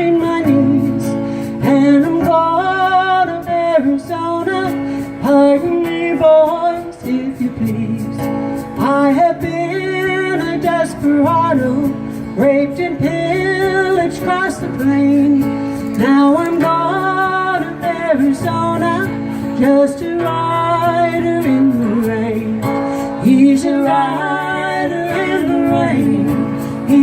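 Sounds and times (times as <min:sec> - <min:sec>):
strummed acoustic guitar: 0:00.0 - 0:27.0
woman singing country song: 0:00.0 - 0:27.0.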